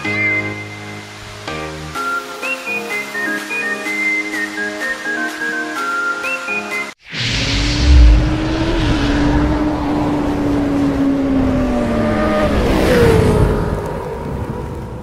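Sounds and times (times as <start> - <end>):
rushing whoosh: 7.0 - 13.7
deep boom: 7.1 - 10.4.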